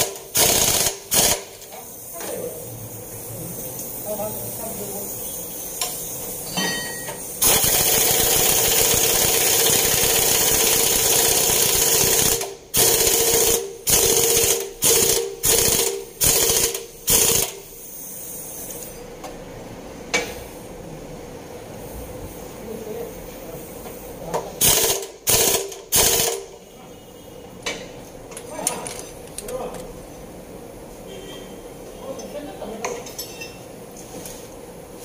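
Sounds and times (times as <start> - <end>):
impact wrench running: 0.0 - 1.8, 7.4 - 17.7, 24.6 - 26.6.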